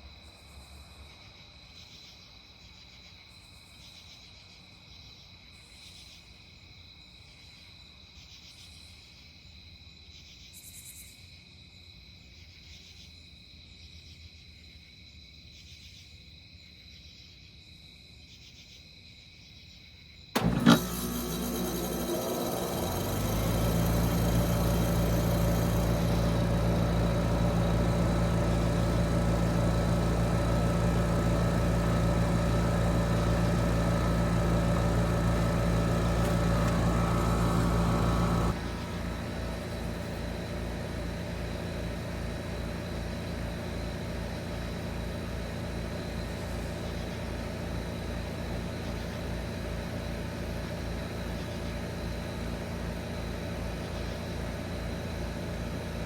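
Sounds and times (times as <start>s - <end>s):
fan running: 20.4s - 56.0s
heat pump compressor hum: 20.4s - 56.0s.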